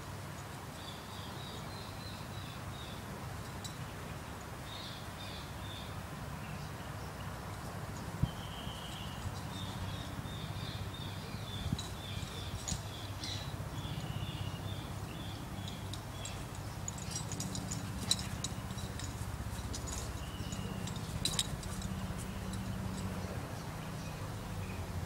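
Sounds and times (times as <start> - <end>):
small bird chirping: 8.2 - 23.1.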